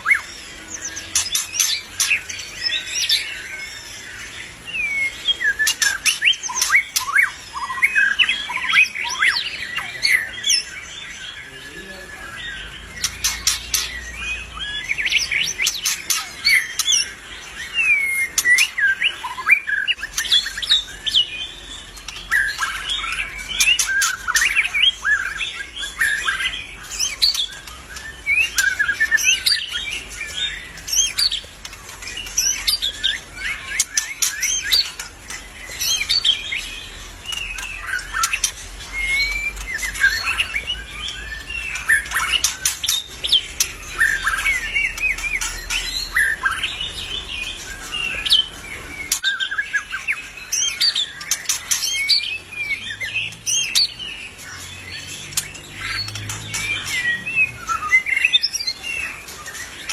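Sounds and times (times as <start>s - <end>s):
sharp clicking bird notes: 21.9s - 52.4s.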